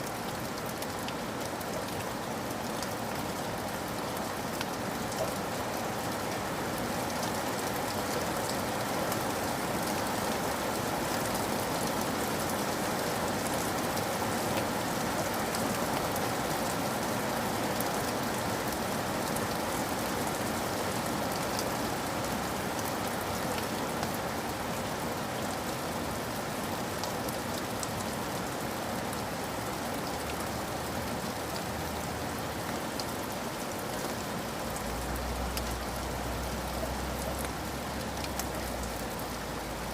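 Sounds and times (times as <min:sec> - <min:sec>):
rain falling: 0:00.0 - 0:39.9
raindrops ticking: 0:34.7 - 0:39.9.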